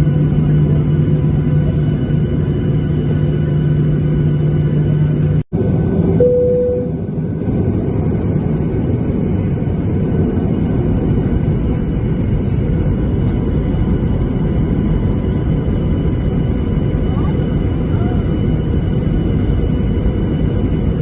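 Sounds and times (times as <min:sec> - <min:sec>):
aircraft cabin engine rumble: 0:00.0 - 0:21.0
short steady tone: 0:06.2 - 0:07.0.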